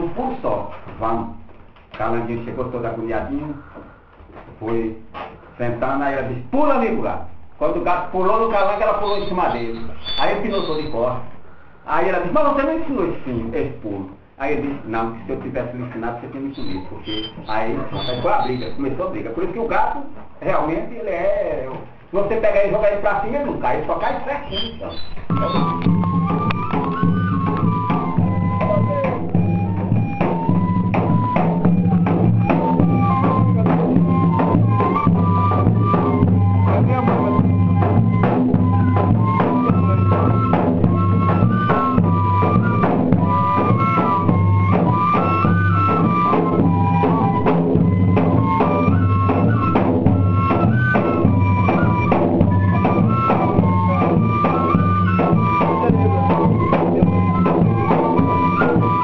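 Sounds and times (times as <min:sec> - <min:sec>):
fife melody: 0:08.3 - 0:11.1, 0:14.8 - 0:19.1, 0:22.7 - 0:59.0
bass drum beats: 0:24.5 - 0:59.0
snare drum beats: 0:24.5 - 0:59.0.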